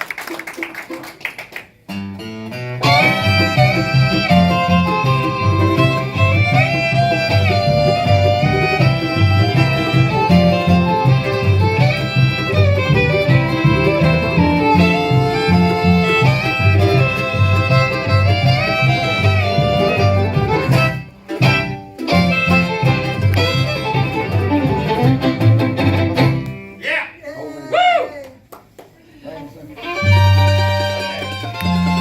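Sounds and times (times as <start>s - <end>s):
acoustic guitar: 0.8s - 26.8s, 29.9s - 32.0s
fiddle melody: 1.9s - 26.7s, 29.7s - 32.0s
alternating bass notes: 2.6s - 26.6s.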